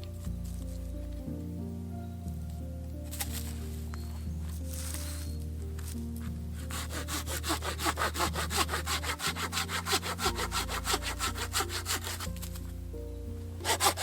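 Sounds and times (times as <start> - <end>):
soft background music: 0.0 - 14.0
hand saw cutting wood: 6.6 - 12.4, 13.6 - 14.0.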